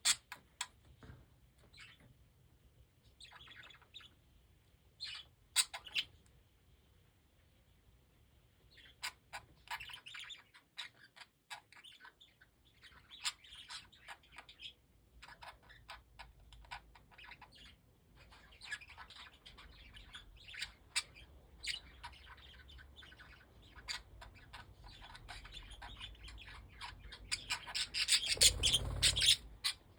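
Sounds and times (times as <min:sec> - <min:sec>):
budgerigars chirping and chattering: 0:00.0 - 0:00.8, 0:03.1 - 0:04.2, 0:05.0 - 0:06.2, 0:08.7 - 0:29.9.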